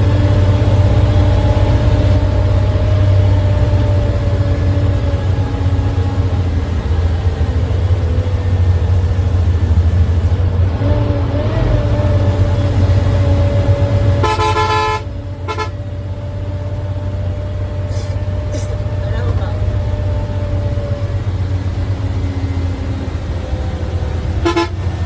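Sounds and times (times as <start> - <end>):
bus engine drone: 0.0 - 25.0
road noise: 0.0 - 25.0
vehicle horn honking: 14.1 - 15.8, 24.4 - 25.0.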